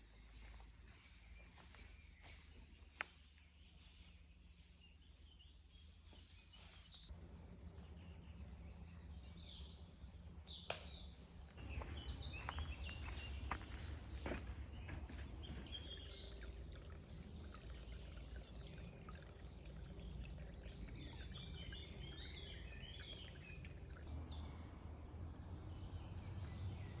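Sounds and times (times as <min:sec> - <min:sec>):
birds chirping and singing: 0:08.4 - 0:24.4.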